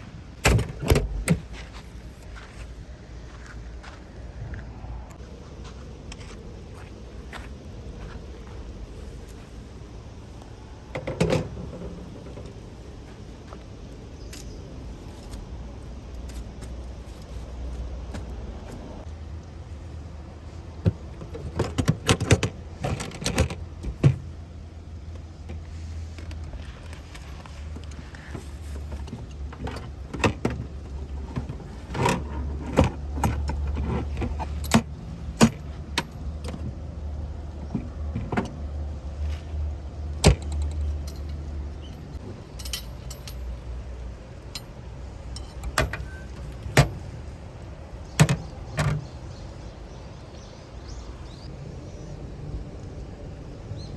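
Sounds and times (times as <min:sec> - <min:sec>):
steady low rumble: 0:00.0 - 0:21.6
metallic clinks and knocks: 0:40.2 - 0:43.8, 0:44.5 - 0:46.5.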